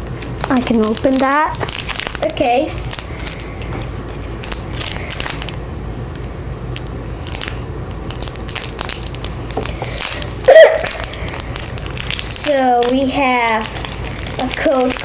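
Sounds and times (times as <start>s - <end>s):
steady low hum: 0.0s - 15.0s
foil wrapper crinkling and tearing: 0.1s - 15.0s.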